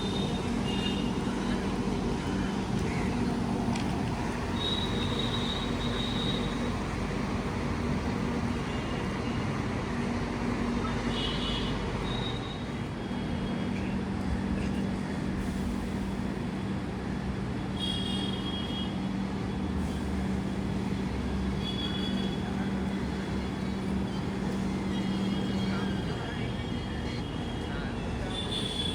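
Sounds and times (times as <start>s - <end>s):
train rumbling: 0.0s - 17.6s, 19.0s - 28.9s.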